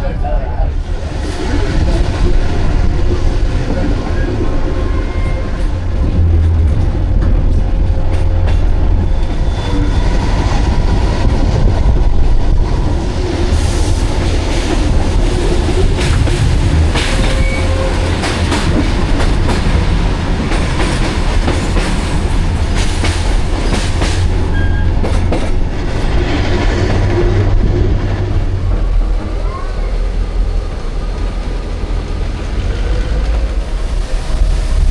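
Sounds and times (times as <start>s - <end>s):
train wheels rumbling on rails: 0.0s - 34.9s
rail joint clicks: 1.8s - 34.8s
wheels squealing: 17.0s - 18.2s.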